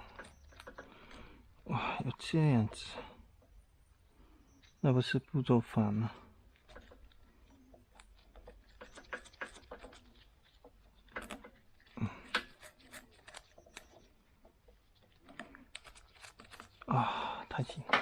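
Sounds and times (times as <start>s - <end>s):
clicks and knocks of parts handled: 0.0s - 1.6s, 6.5s - 16.9s, 17.6s - 18.0s.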